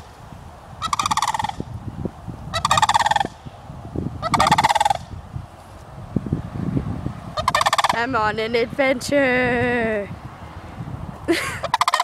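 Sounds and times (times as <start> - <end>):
turkeys gobbling: 0.8 - 1.6, 2.5 - 3.4, 4.2 - 5.0, 7.4 - 8.0, 11.6 - 12.0.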